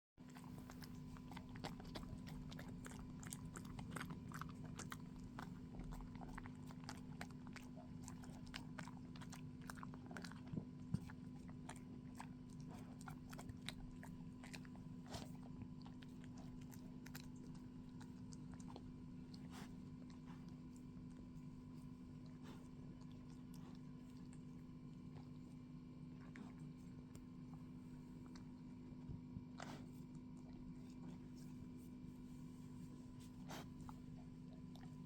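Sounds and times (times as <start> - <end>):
faint steady hum: 0.2 - 35.0
dog crunching food: 0.3 - 25.5.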